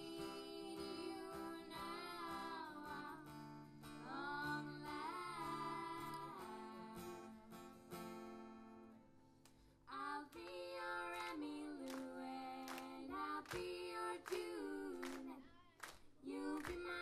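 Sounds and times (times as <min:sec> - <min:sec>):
person singing: 0:00.0 - 0:03.3, 0:04.0 - 0:07.8
acoustic guitar strumming: 0:00.0 - 0:09.2.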